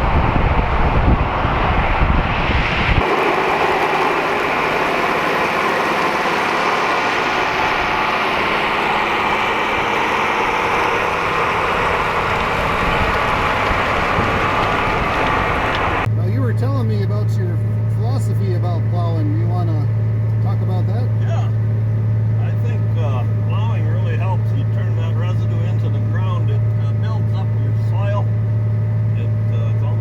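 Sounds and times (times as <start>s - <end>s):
wind rumble on microphone: 0.0s - 3.2s, 9.4s - 16.1s
tractor diesel engine drone: 0.0s - 30.0s.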